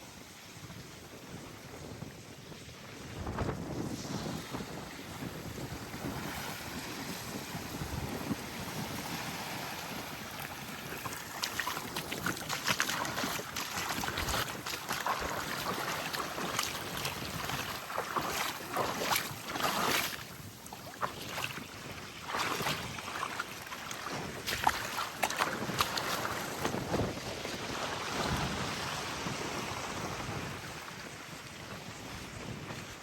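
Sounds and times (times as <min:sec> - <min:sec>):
small waves lapping on shore: 0:00.0 - 0:33.0
water fizzing over sand: 0:06.0 - 0:21.6, 0:22.2 - 0:27.2.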